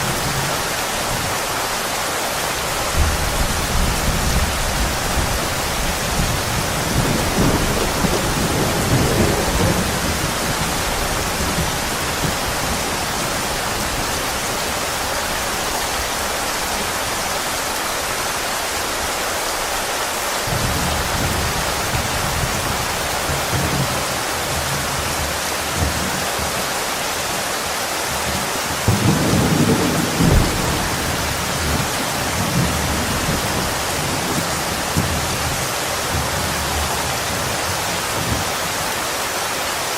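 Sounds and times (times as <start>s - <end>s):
heavy rain hissing: 0.0s - 39.9s
thunder rumbling: 2.7s - 17.5s, 20.5s - 27.4s, 28.1s - 38.7s.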